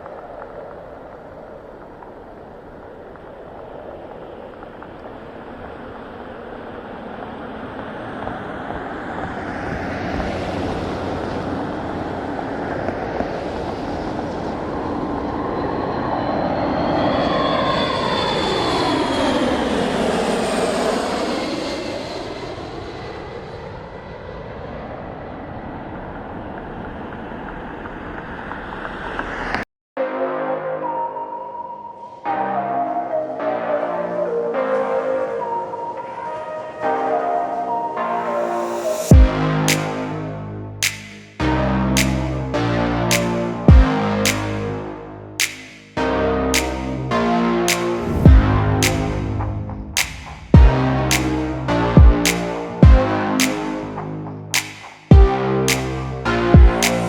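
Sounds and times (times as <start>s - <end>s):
jet flying past: 0.0s - 29.6s, 34.8s - 57.0s
whistling tones sweeping downward: 14.8s - 22.3s, 30.9s - 40.1s.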